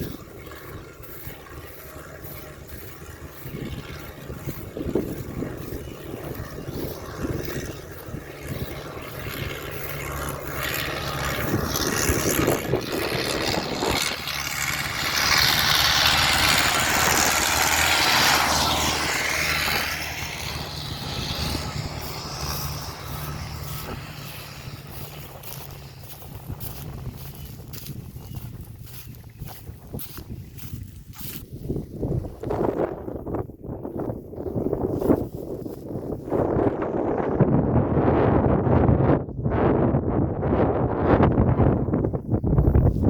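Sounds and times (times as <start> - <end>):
rushing noise: 0.0 - 27.9
engine humming: 0.0 - 37.6.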